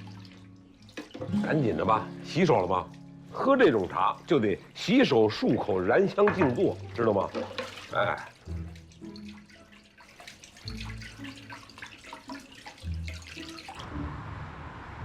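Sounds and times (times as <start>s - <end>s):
tap water splashing in sink: 0.0s - 13.8s
soft background music: 0.0s - 15.0s.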